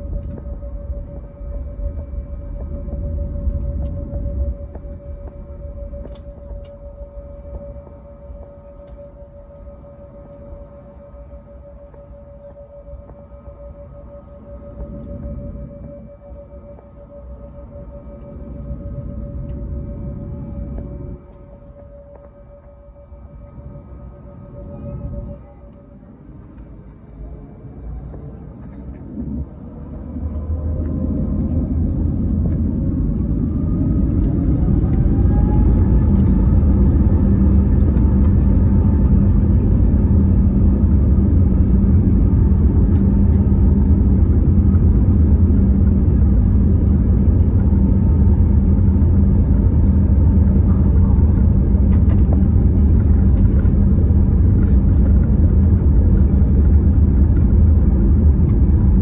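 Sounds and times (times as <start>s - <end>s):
jet engines spooling up: 13.0s - 59.0s.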